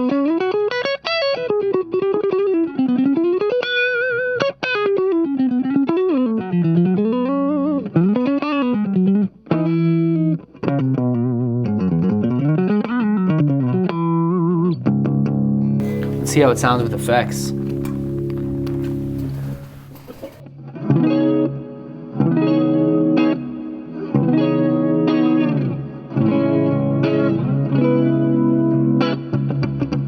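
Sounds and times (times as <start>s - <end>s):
clean electric guitar notes bending: 15.8s - 20.4s.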